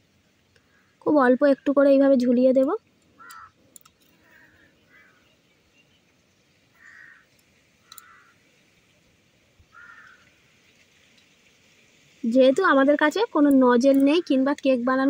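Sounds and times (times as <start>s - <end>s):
faint bird calls: 0.4s - 1.1s, 3.1s - 8.8s, 9.6s - 10.5s
faint clicks: 2.6s - 5.1s, 7.3s - 8.3s.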